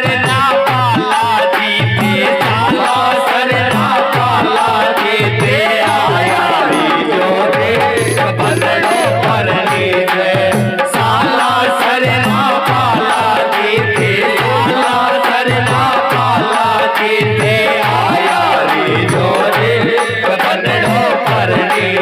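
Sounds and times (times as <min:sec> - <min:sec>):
dholak drum rhythm: 0:00.0 - 0:22.0
electronic organ melody: 0:03.9 - 0:10.9.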